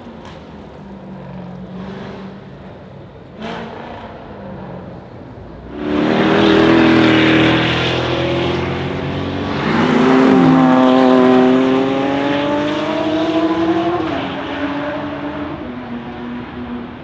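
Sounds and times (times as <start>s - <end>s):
car engine revving high: 5.7s - 16.6s.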